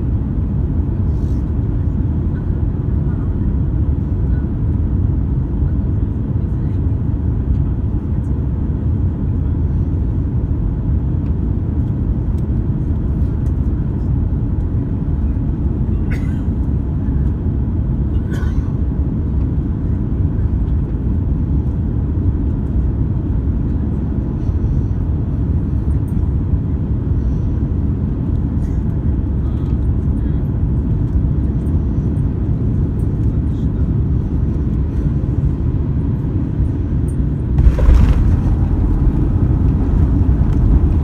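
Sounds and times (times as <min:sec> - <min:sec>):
airliner cabin rumble: 0:00.0 - 0:41.0.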